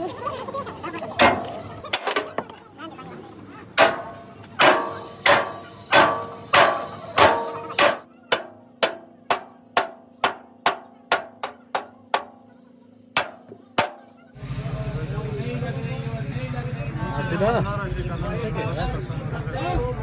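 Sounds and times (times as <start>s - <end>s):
hammer striking steel: 1.2s - 2.5s, 3.8s - 12.6s, 13.2s - 14.2s.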